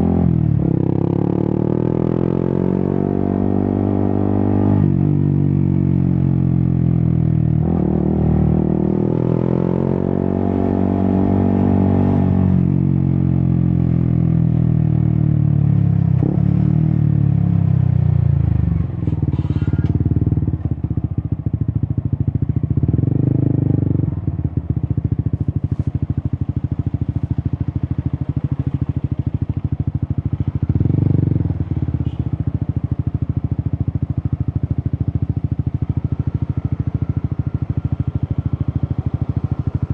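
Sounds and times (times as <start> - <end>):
motorcycle engine revving: 0.0 - 39.9
motorcycle engine idling: 17.1 - 39.9.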